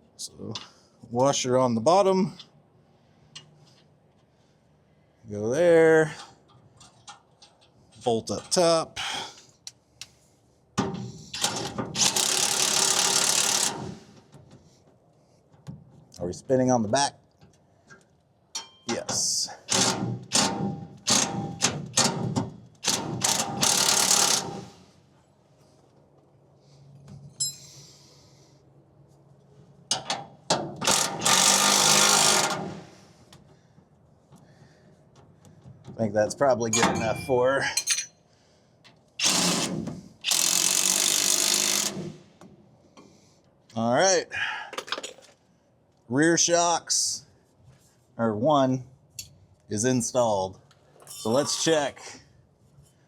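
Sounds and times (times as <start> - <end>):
power wrench running: 11.4 - 13.9, 22.8 - 24.7, 30.8 - 32.8, 39.2 - 42.1.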